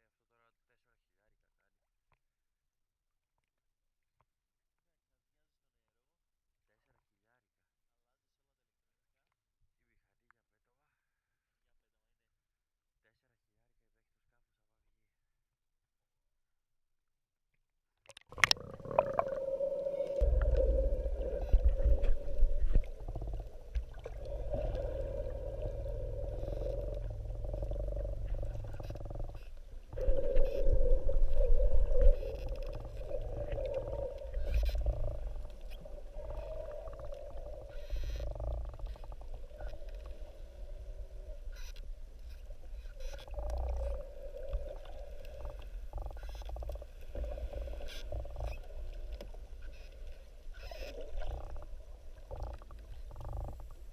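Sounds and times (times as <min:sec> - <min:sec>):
water movement rumbling: 0:18.2 - 0:53.9
steady underwater hum: 0:18.3 - 0:53.9.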